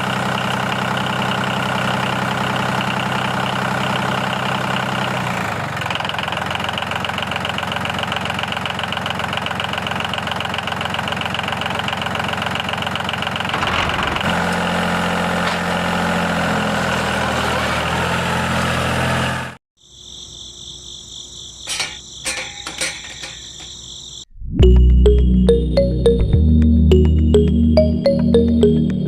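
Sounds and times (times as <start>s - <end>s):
steady high tones: 24.5s - 29.0s.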